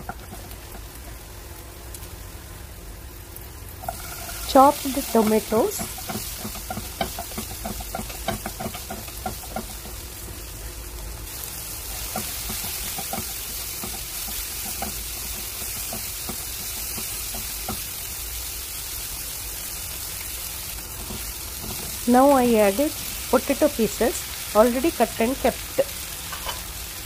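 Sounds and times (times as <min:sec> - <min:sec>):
stirring knocks and scrapes: 0:00.0 - 0:00.9, 0:03.8 - 0:10.4, 0:12.0 - 0:17.9, 0:21.0 - 0:22.1
food sizzling in frying pan: 0:00.0 - 0:27.0.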